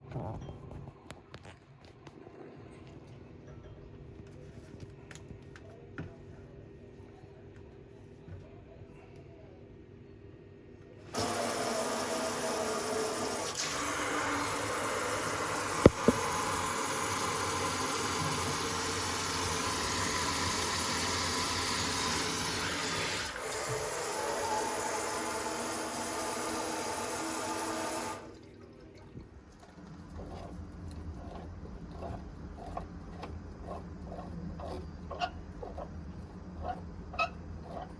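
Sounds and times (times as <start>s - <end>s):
tap water running into sink: 11.2s - 28.4s.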